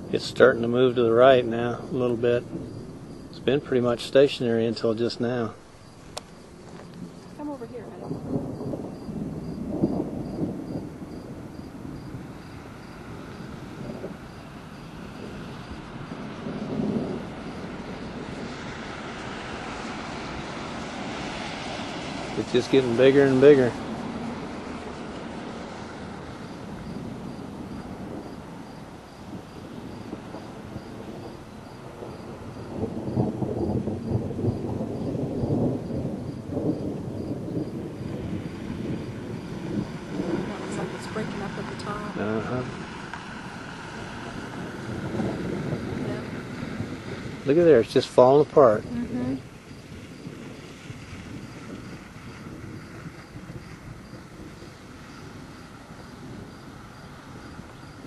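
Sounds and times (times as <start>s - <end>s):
insect chirping: 0.0s - 58.0s
low uneven rumbling: 0.0s - 58.0s.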